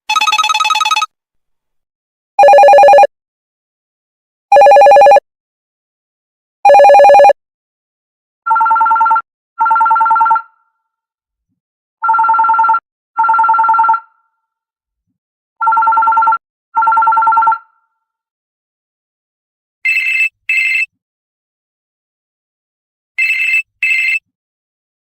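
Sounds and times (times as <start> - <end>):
higher-pitched ringtone: 0.1 - 1.1, 2.4 - 3.1, 4.5 - 5.2, 6.7 - 7.4, 23.2 - 24.2
telephone double ring: 0.1 - 1.1, 2.4 - 3.1, 4.5 - 5.2, 6.7 - 7.3.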